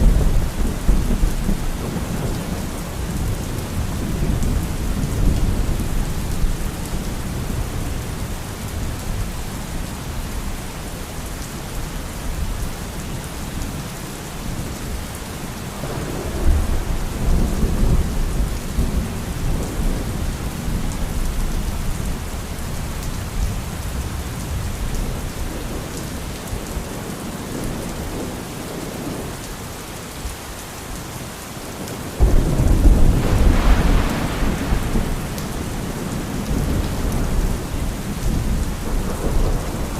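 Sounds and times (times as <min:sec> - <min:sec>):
heavy rain: 0:00.0 - 0:39.9
rolling thunder: 0:15.8 - 0:21.2, 0:32.2 - 0:39.9
thunder crack: 0:32.2 - 0:37.7.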